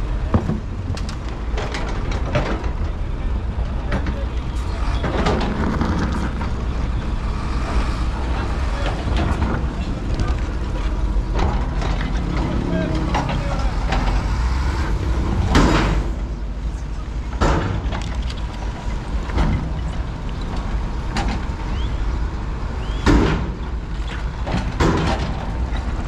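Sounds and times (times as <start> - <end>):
low traffic rumble: 0.0 - 26.0
vehicles whooshing past: 0.0 - 26.0.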